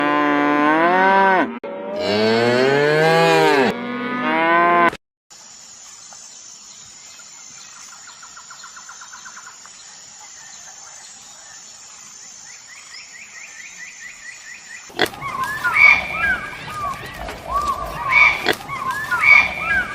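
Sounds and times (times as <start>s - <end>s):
cow mooing: 0.0s - 5.0s.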